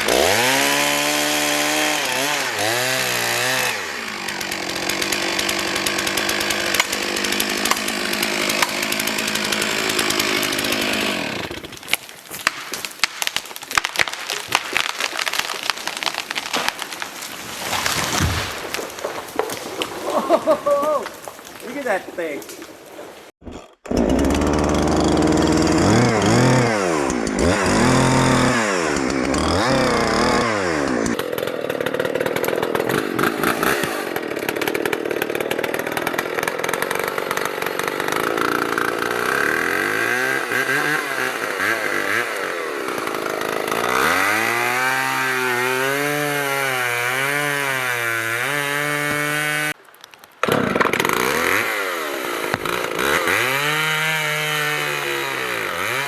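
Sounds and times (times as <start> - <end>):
chainsaw revving and cutting: 0.0 - 11.8, 23.5 - 49.8, 50.4 - 56.0.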